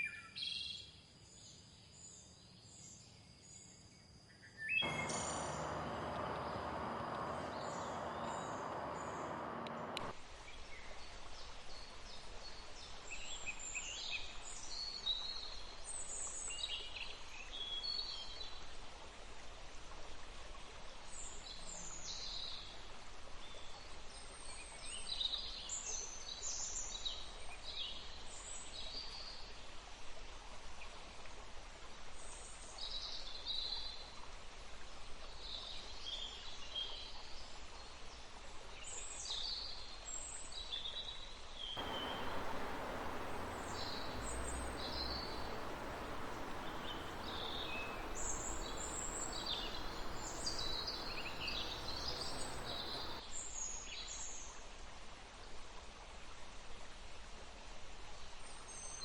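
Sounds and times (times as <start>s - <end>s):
faint steady hiss: 4.8s - 10.1s, 41.8s - 53.2s
running water rushing: 4.8s - 10.1s, 41.8s - 53.2s
small birds chirping: 4.8s - 10.1s, 41.8s - 53.2s.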